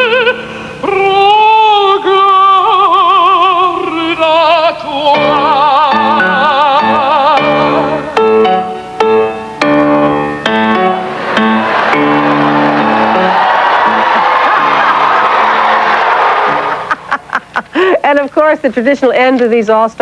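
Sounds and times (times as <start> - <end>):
operatic soprano singing: 0.0 - 8.4
accompaniment playing repeated chords: 5.2 - 16.9.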